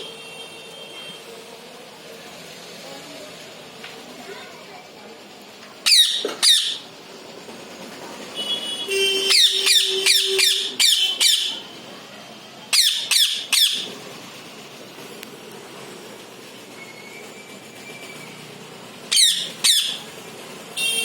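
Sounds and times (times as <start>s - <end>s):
parrot shrill calls: 5.8s - 6.8s, 9.2s - 11.6s, 12.7s - 13.9s, 19.1s - 20.0s.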